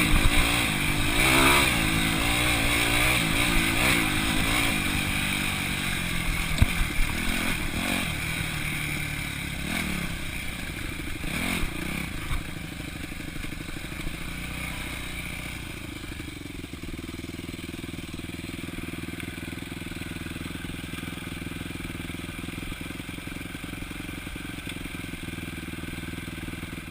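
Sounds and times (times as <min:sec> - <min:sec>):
dirt bike engine revving: 0:00.0 - 0:16.9
engine knocks and clatter: 0:00.0 - 0:26.9.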